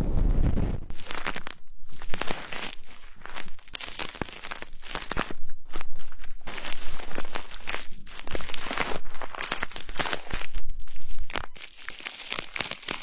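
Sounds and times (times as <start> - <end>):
low rushing microphone rumble: 0.0 - 0.9
rapid crinkling and scratching: 0.0 - 13.0.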